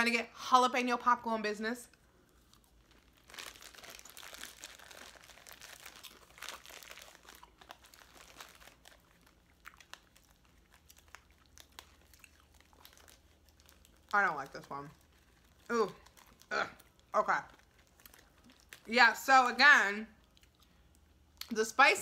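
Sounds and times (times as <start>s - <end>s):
popcorn being chewed: 1.9s - 19.2s, 20.1s - 21.6s.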